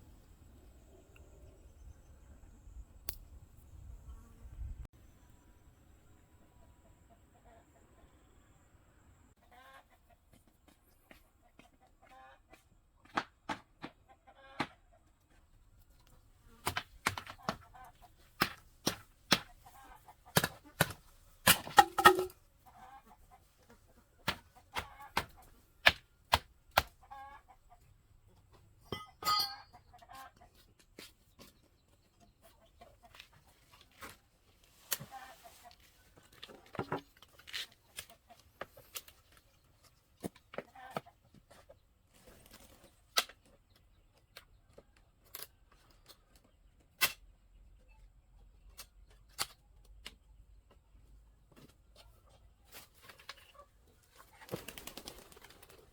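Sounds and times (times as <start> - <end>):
chicken clucking: 6.5 - 8.2, 9.4 - 10.5, 31.4 - 33.6, 40.6 - 41.8.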